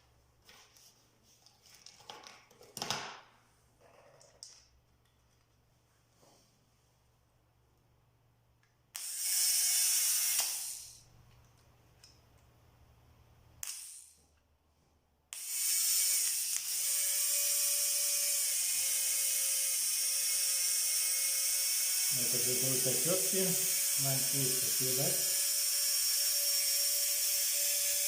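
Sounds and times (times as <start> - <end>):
small electric motor whining: 9.0 - 11.0, 15.4 - 28.0.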